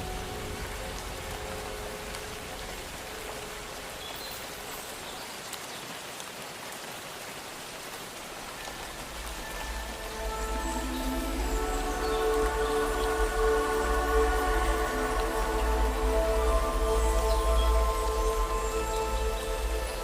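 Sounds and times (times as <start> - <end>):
soft music with low bass: 0.0 - 4.0, 8.7 - 20.0
steady rain falling: 0.0 - 20.0
faint held music tones: 8.4 - 20.0.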